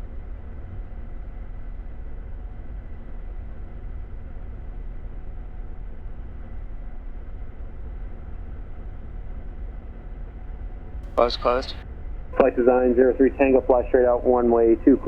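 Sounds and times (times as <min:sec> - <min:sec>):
light aircraft engine drone: 0:11.2 - 0:11.8, 0:12.4 - 0:15.0.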